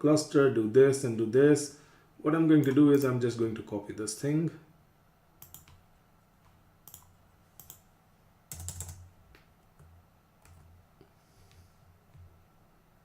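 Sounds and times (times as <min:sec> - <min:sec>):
computer keyboard typing: 0:05.4 - 0:05.8, 0:06.4 - 0:07.9, 0:08.5 - 0:09.1, 0:09.8 - 0:10.7.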